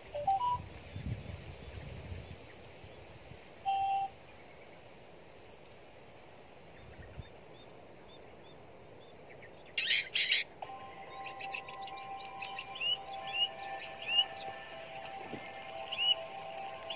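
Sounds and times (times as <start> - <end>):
steady whistled bird tone: 0.0 - 3.0, 3.6 - 4.8, 6.7 - 16.9
birds calling: 9.0 - 16.9
high bird ticking notes: 9.2 - 16.9
harsh bird calls: 9.3 - 16.9.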